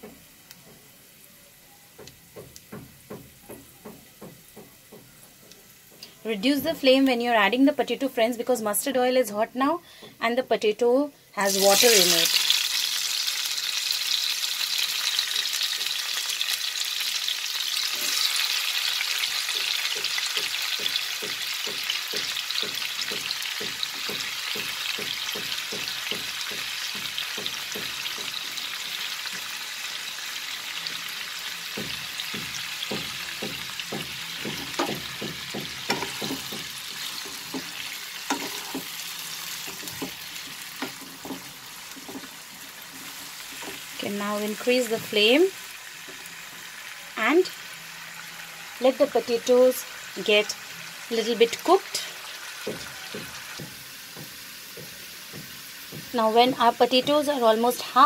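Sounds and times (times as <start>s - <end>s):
potatoes sizzling in oil: 0.0s - 58.0s
wooden spatula stirring in pan: 19.4s - 29.6s, 31.7s - 46.8s, 51.6s - 57.3s.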